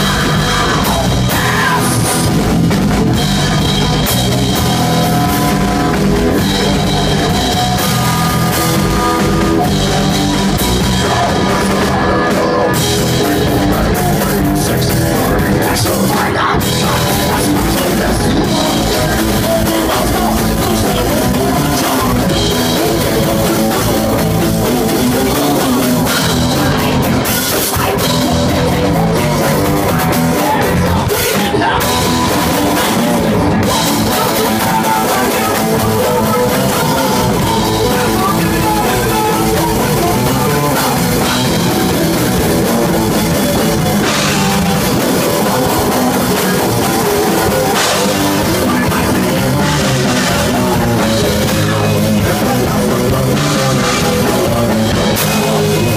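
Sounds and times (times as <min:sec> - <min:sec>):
punk rock band playing: 0:00.0 - 0:55.9
shouted singing: 0:00.0 - 0:55.9.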